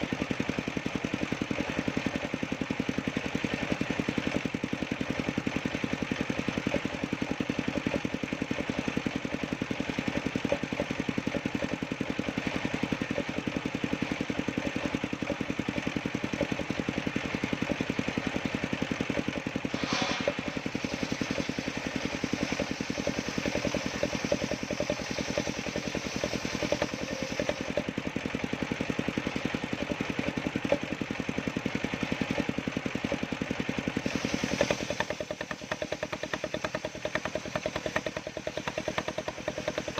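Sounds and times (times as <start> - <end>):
sawmill engine running: 0.0 - 39.9
brief sharp sound: 19.7 - 20.6.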